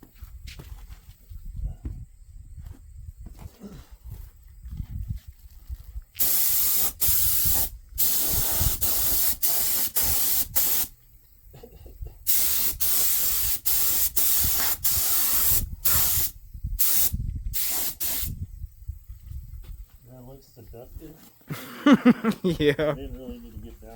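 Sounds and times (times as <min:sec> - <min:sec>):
spray nozzle hissing bursts: 0:06.2 - 0:10.9, 0:12.3 - 0:18.4.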